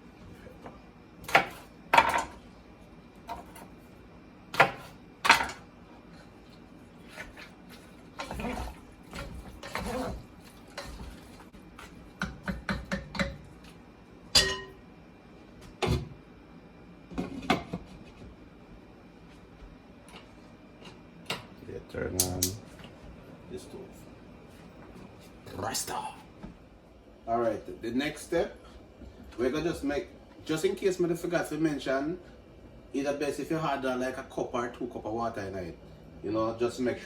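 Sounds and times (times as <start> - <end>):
spoon scraping pot: 8.2 - 11.9
spoon knocking against pot: 12.2 - 13.4.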